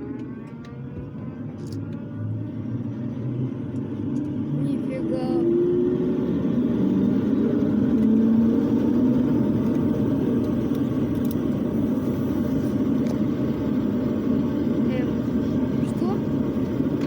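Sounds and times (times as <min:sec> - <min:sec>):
propeller engine drone: 0:00.0 - 0:17.0.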